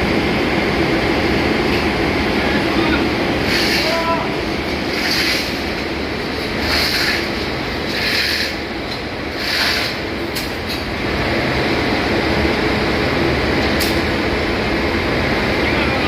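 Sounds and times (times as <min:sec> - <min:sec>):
engine room machinery: 0:00.0 - 0:16.0
short hissing pulses: 0:03.4 - 0:04.1.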